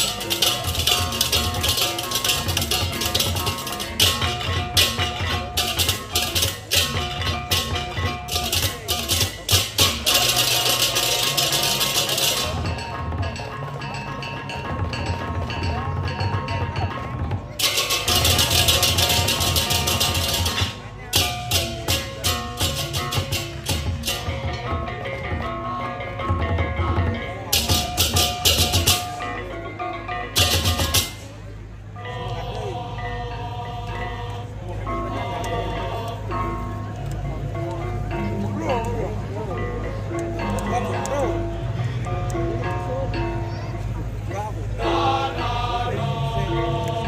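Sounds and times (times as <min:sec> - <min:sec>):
cymbals clashing: 0:00.0 - 0:25.1, 0:27.5 - 0:33.2
drums playing: 0:00.0 - 0:29.2, 0:30.4 - 0:31.3.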